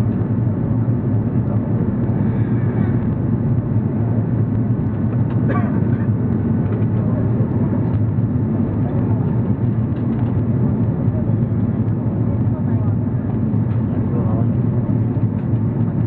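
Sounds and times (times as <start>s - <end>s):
aircraft engines low rumble: 0.0s - 16.0s.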